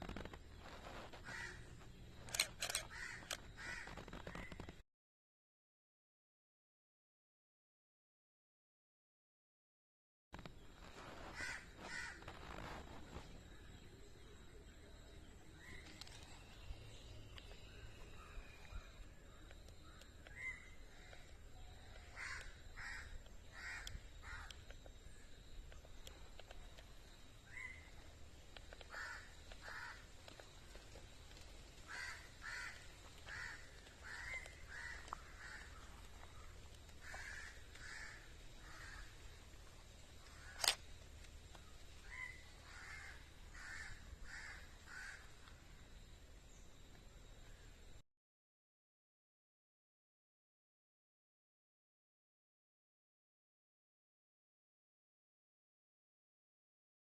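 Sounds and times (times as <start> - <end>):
bird calling: 0.0 - 4.8, 10.9 - 45.7
sharp click: 40.6 - 40.8.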